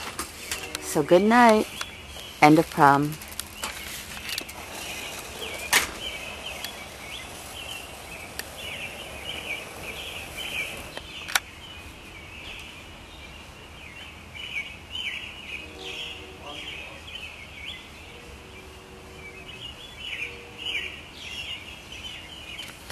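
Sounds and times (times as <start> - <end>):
birds chirping: 0.0 - 22.9
sharp clicks: 10.9 - 11.5.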